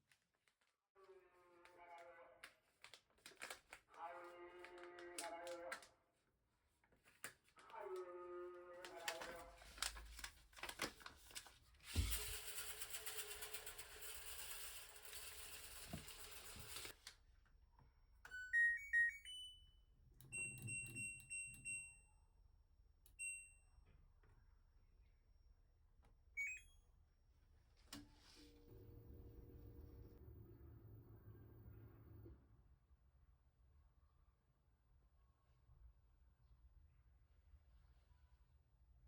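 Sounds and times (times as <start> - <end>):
washing machine beeps: 18.2 - 22.2, 23.1 - 23.8, 26.4 - 26.9.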